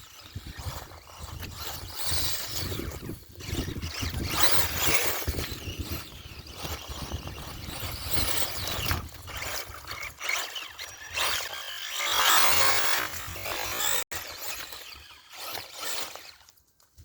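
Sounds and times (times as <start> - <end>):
wind buffeting microphone: 0.3 - 10.1.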